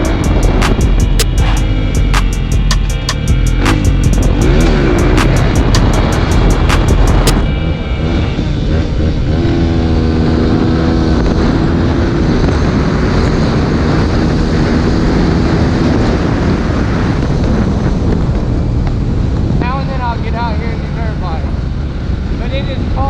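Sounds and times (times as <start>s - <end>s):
dirt bike engine running: 0.0s - 19.8s
wind rushing over microphone: 0.0s - 23.0s.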